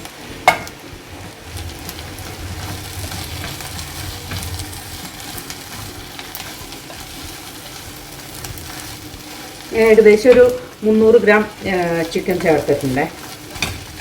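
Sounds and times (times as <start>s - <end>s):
onions sizzling in a pan: 0.0s - 14.0s
stirring clicks and scrapes: 0.7s - 14.0s.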